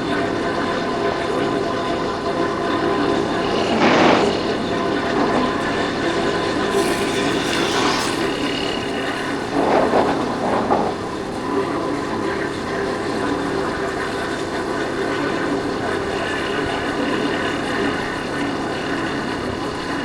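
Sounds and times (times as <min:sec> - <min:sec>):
wind noise: 0:02.4 - 0:14.7.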